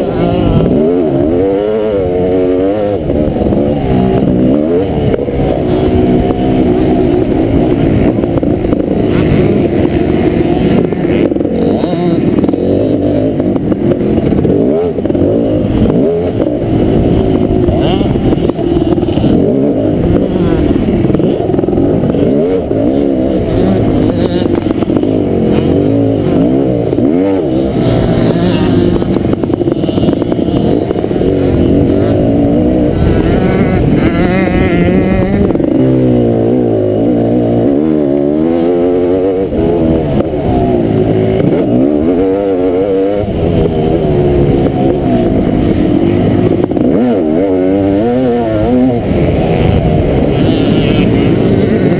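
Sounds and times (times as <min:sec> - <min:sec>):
two-stroke motocross engine revving: 0:00.0 - 0:51.9.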